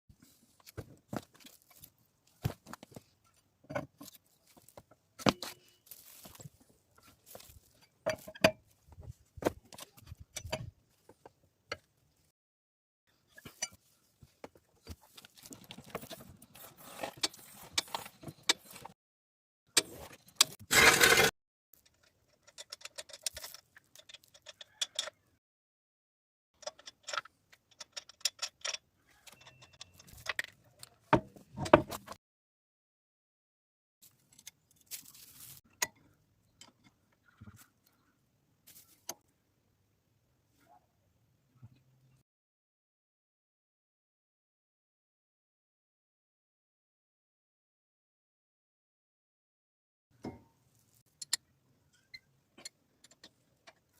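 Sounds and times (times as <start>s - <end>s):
metal tools clicking and clinking: 19.8s - 25.2s, 26.6s - 30.6s.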